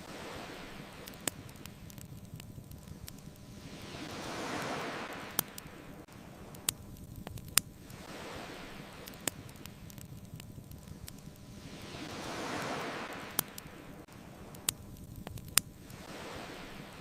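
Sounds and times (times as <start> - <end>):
ocean waves washing in: 0.0 - 17.0
wood fire pops: 1.0 - 3.4, 6.5 - 8.0, 9.0 - 11.4, 14.5 - 16.0.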